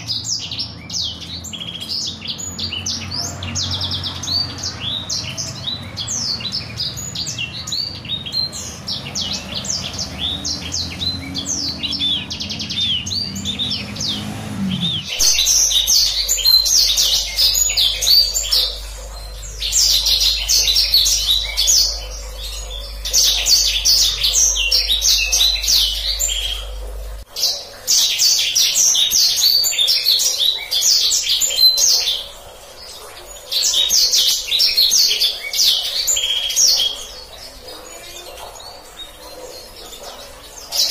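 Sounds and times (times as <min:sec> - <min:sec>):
canary chirps and trills: 0:00.0 - 0:40.9
background hum: 0:03.8 - 0:40.8.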